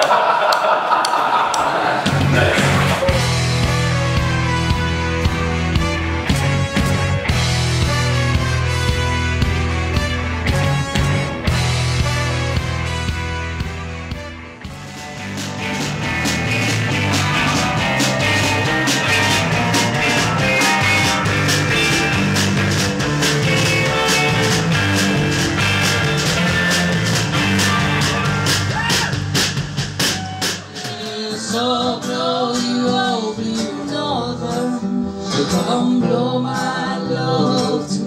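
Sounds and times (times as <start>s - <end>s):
band playing loud rock music: 2.0s - 33.1s
soft song with singing and guitar: 30.8s - 38.0s.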